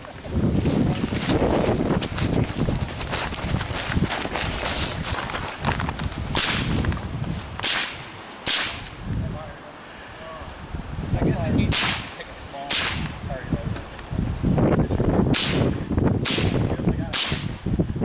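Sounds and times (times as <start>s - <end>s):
rifle shots cracking: 6.4s - 6.7s, 7.6s - 8.9s, 11.7s - 13.1s, 15.4s - 17.4s.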